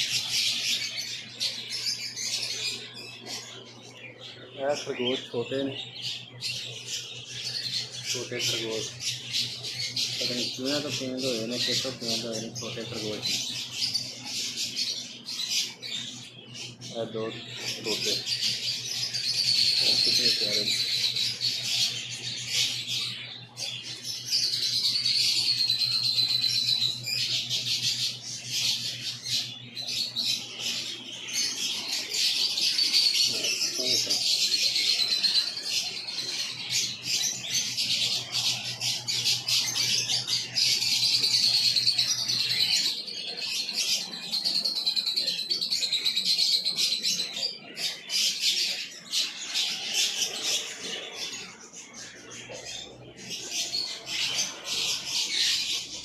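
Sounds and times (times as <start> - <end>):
steady low hum: 0.0 - 43.2
caged birds chirping and squawking: 0.0 - 56.0.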